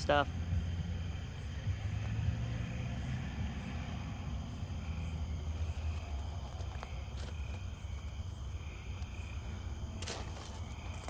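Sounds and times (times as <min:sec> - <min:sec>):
night insects chirping: 0:00.0 - 0:11.0
steady low rumble: 0:00.0 - 0:11.0.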